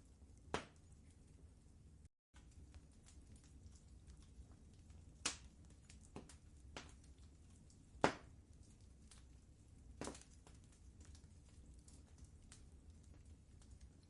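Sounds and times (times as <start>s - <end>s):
low steady rumble: 0.0s - 14.0s
wood fire crackling: 0.0s - 14.0s
sharp fire pops: 0.5s - 0.8s, 5.1s - 7.1s, 7.8s - 8.4s, 10.0s - 11.2s.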